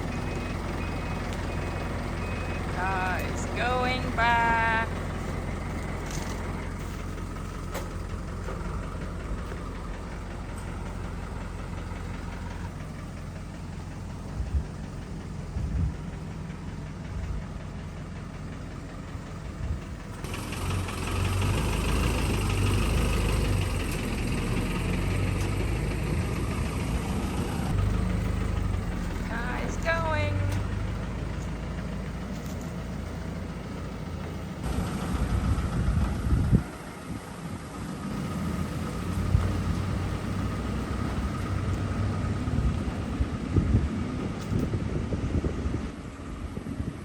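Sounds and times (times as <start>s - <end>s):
vehicle engine idling: 0.0s - 47.0s
reversing beeps: 0.1s - 2.8s.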